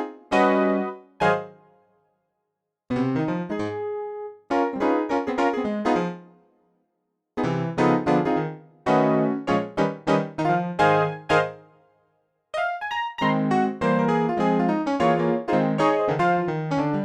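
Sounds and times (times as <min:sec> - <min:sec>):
piano chords: 0:00.0 - 0:01.5, 0:02.9 - 0:06.2, 0:07.4 - 0:11.7, 0:12.6 - 0:17.0.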